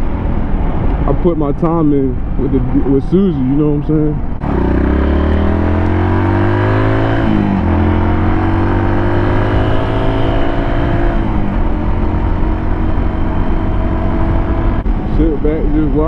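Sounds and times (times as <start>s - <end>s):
wind and road noise: 0.0s - 16.0s
motorcycle engine under load: 4.3s - 15.0s.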